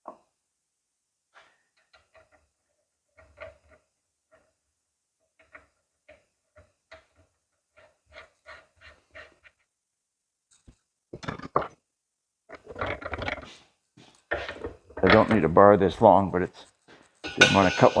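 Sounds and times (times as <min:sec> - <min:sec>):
clattering handling sounds: 0:10.5 - 0:11.8, 0:12.5 - 0:15.6.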